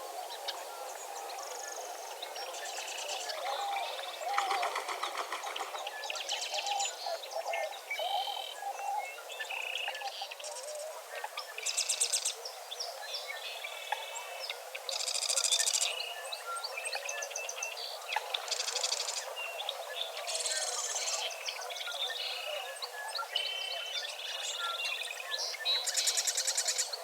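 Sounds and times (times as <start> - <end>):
birds singing and calling: 0.3 - 27.0
low wavering bird calls: 2.8 - 9.2.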